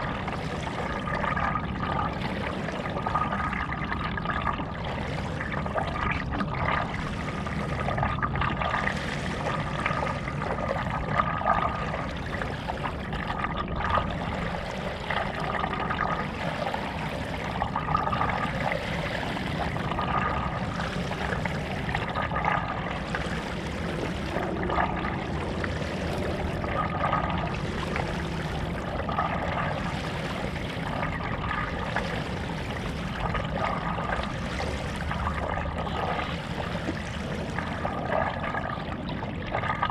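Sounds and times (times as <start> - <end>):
low rumble: 0.0 - 39.9
paddle strokes in water: 11.6 - 38.8.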